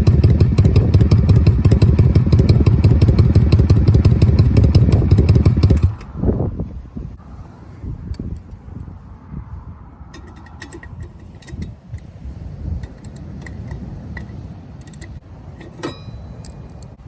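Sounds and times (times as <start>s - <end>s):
motorcycle engine idling: 0.0s - 6.0s
light metallic clicking: 10.1s - 17.0s.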